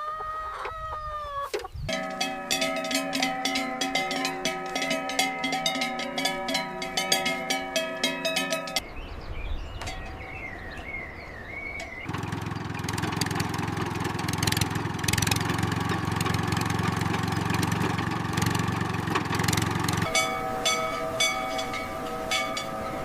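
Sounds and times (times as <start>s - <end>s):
engine starting and running: 11.8s - 22.7s
faint wavering high tone: 20.0s - 23.0s.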